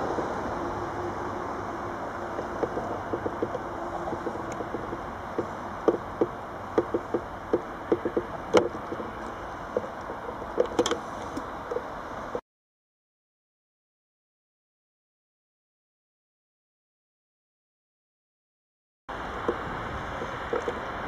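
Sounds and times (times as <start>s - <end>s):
train rumble: 0.0s - 12.4s
train wheels clacking over joints: 2.2s - 11.0s.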